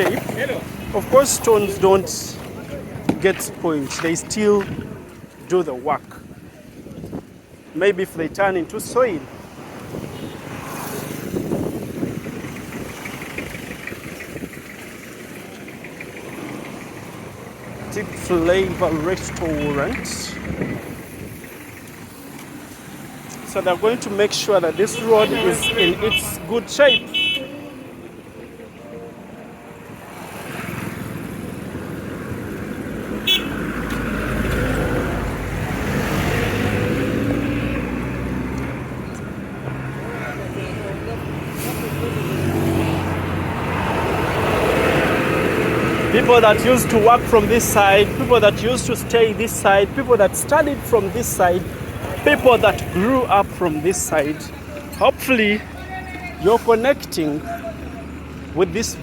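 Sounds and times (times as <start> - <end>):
vehicle passing close: 8.8 - 59.0
engine rumbling at low revs: 11.2 - 27.3.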